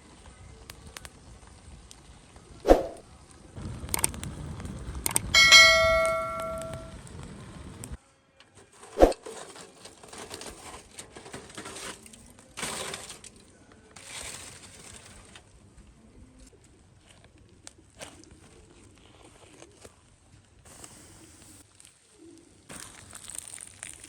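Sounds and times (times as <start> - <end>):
ringing metallic clink: 5.1 - 7.0
short rustling scrapes: 8.6 - 13.4.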